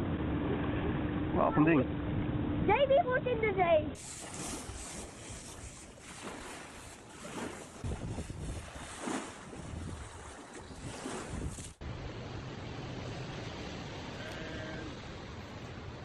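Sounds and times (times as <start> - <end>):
wind: 0.0 - 16.0
rushing water: 4.0 - 16.0
wind buffeting microphone: 7.7 - 12.1.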